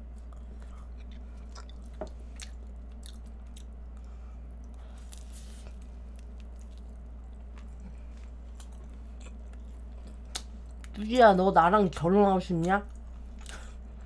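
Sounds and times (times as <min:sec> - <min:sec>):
chewing flaky pastry: 0:00.0 - 0:11.1
steady low hum: 0:00.0 - 0:14.0.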